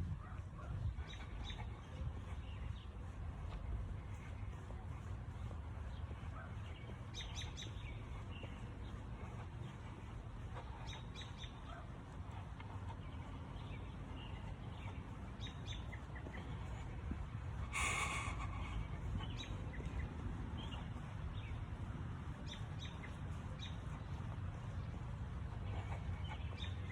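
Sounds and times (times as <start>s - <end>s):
birds chirping: 0.0s - 26.9s.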